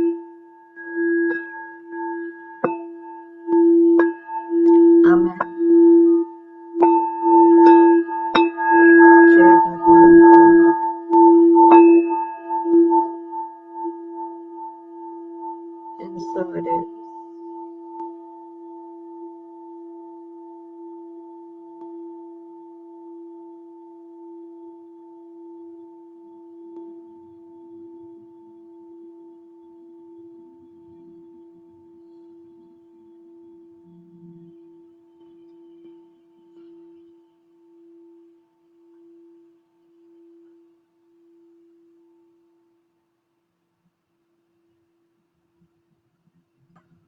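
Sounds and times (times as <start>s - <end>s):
singing bowl ringing tone: 0.0s - 42.8s.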